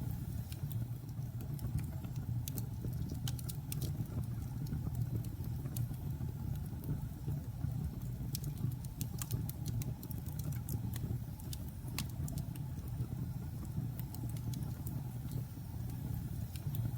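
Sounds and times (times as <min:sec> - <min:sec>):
fire rumbling in fireplace: 0:00.0 - 0:16.9
logs crackling and popping: 0:00.5 - 0:06.9, 0:08.0 - 0:13.0, 0:13.6 - 0:15.4.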